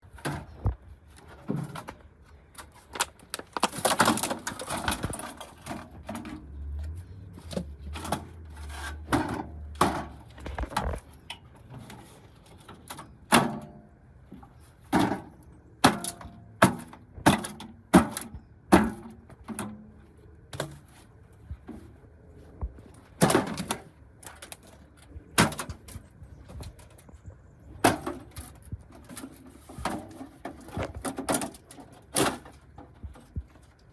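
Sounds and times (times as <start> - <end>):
microwave oven being smashed: 3.4 - 6.0.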